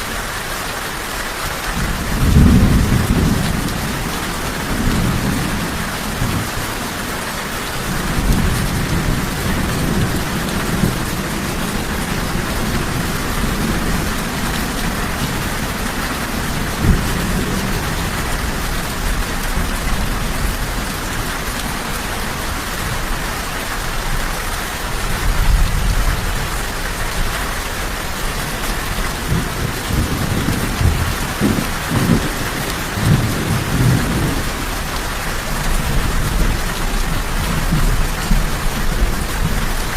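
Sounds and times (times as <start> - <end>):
rain falling: 0.0 - 39.9
thunder rumbling: 1.7 - 7.1, 7.8 - 39.9.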